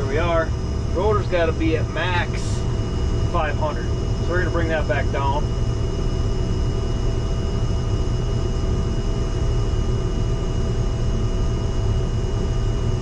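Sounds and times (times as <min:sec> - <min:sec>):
combine harvester rumble: 0:00.0 - 0:08.5
faint whining tones: 0:00.0 - 0:13.0.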